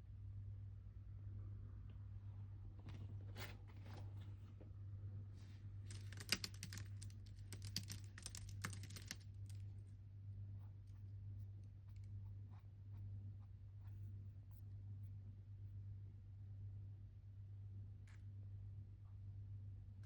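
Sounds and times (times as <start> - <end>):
steady low hum: 0.0 - 20.0
keyboard typing: 5.9 - 9.3.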